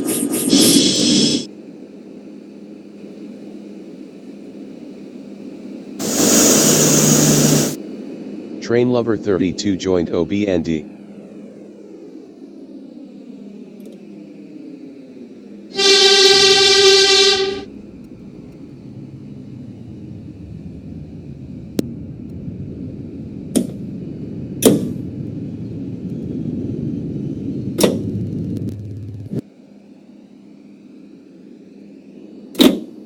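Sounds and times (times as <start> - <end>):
train rumbling: 6.0 - 7.8, 15.7 - 29.4
train horn blast: 15.7 - 18.4.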